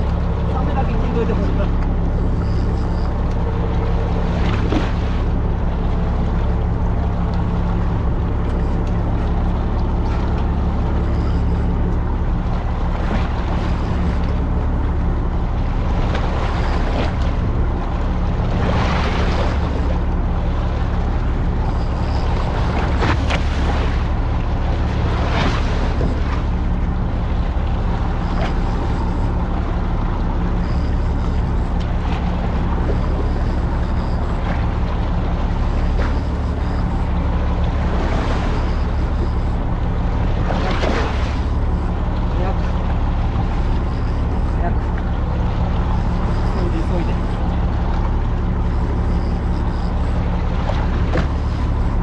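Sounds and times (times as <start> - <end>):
boat engine humming: 0.0 - 52.0
water washing against hull: 0.0 - 52.0.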